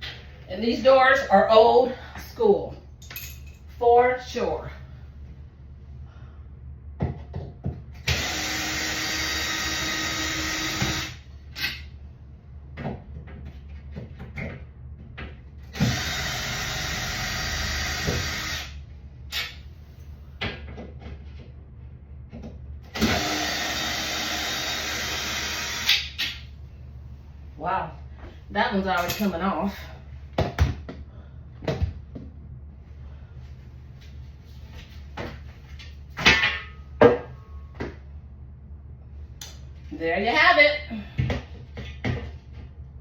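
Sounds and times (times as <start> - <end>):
power drill running: 8.0 - 11.2, 15.8 - 18.8, 23.0 - 26.1.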